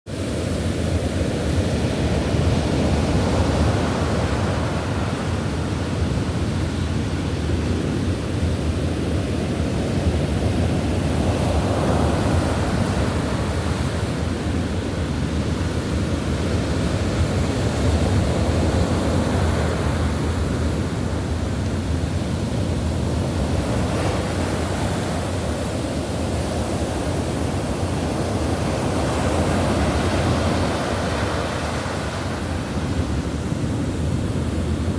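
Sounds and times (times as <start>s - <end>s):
ocean waves: 0.1s - 34.9s.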